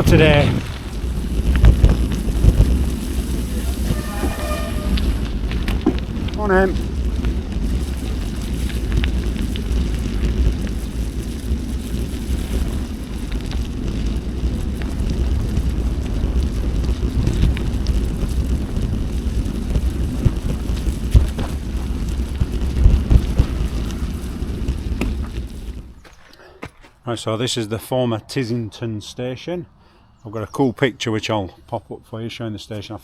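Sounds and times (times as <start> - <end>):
wind buffeting microphone: 0.0 - 26.1
tyres on gravel: 0.0 - 27.1.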